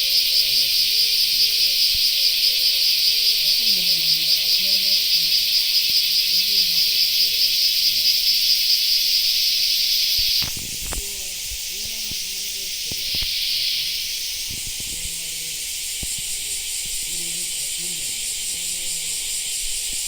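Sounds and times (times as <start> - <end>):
shrill pulsing insect chorus: 0.0 - 20.0
quiet hiss: 10.2 - 20.0.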